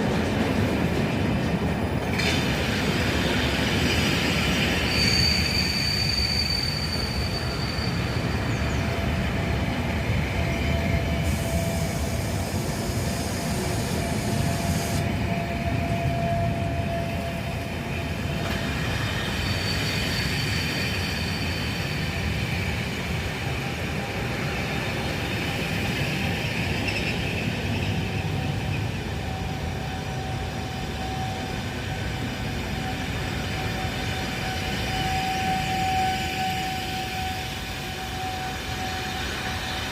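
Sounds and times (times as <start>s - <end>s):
diesel train rumbling: 0.0s - 39.9s
train wheels squealing: 1.7s - 39.9s.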